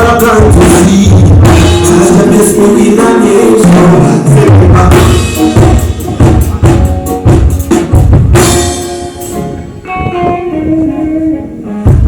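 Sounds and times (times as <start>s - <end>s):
person singing: 0.0s - 5.6s.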